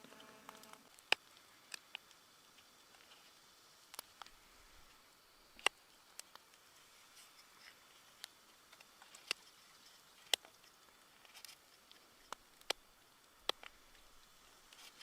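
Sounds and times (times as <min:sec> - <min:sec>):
faint sharp pops and clicks: 0:00.0 - 0:03.2, 0:10.2 - 0:15.0
steady hiss: 0:00.0 - 0:15.0.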